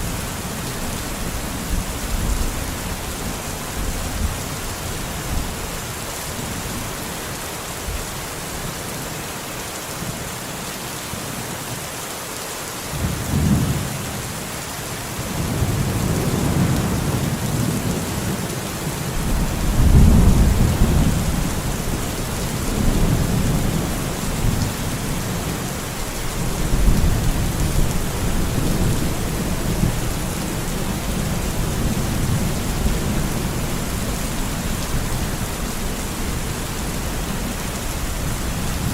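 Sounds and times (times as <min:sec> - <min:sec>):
steady rain falling: 0:00.0 - 0:38.9
rolling thunder: 0:19.2 - 0:22.0.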